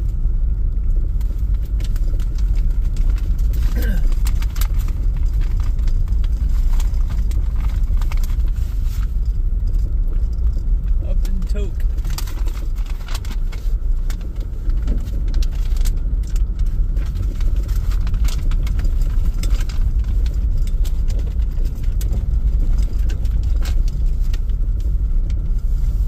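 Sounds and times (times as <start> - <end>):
car driving heard from inside: 0.0 - 26.0
small rattles and clicks: 0.0 - 26.0.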